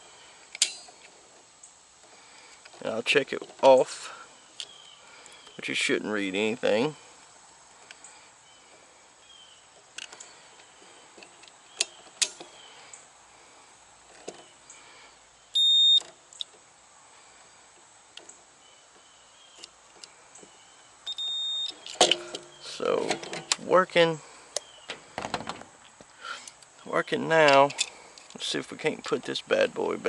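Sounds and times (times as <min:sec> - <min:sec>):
multimeter continuity beeps: 0:15.6 - 0:16.1, 0:21.0 - 0:21.8.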